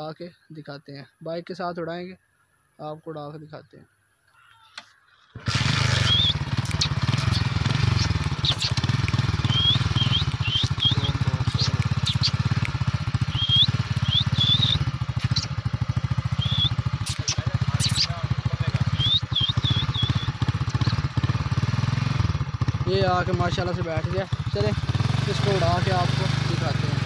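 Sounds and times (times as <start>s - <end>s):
bird chirps: 2.0s - 21.2s
motorcycle engine running: 5.4s - 27.0s.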